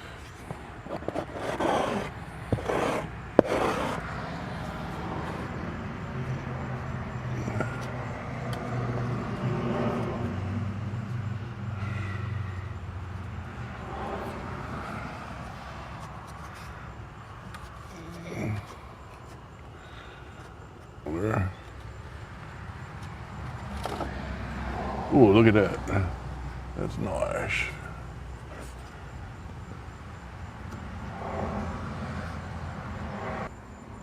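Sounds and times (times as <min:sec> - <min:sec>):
low vehicle engine hum: 0:00.0 - 0:34.0
applicator scraping epoxy on metal: 0:00.9 - 0:04.1.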